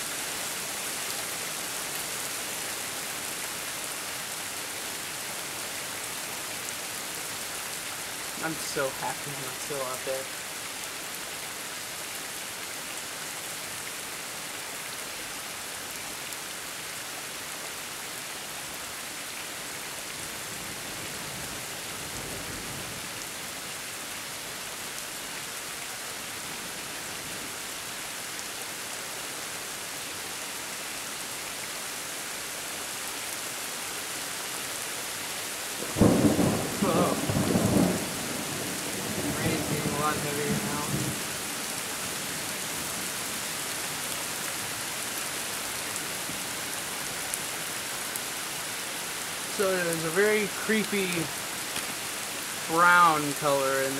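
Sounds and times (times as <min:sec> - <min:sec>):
heavy rain falling: 0:00.0 - 0:53.9
thunder clap: 0:35.8 - 0:41.2
thunder rumble: 0:35.8 - 0:41.2.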